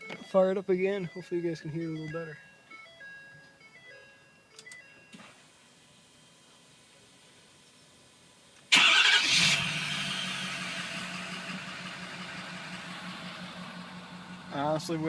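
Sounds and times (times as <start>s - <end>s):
diesel engine starting and idling: 8.7s - 15.0s.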